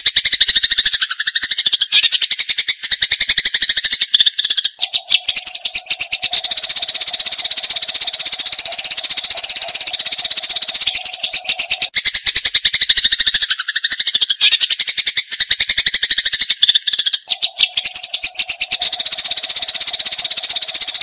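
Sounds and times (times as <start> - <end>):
sparrows chattering: 0.0 - 21.0.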